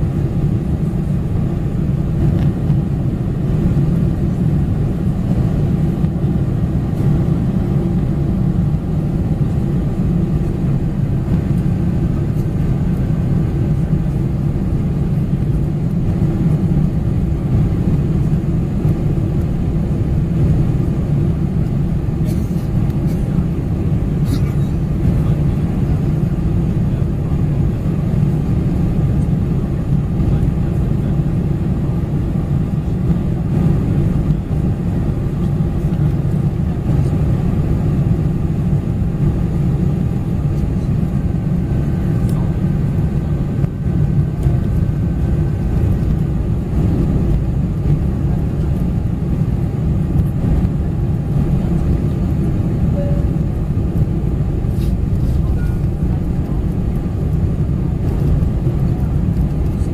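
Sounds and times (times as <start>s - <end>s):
aircraft cabin engine rumble: 0.0s - 59.9s
faint steady tones: 52.5s - 54.1s.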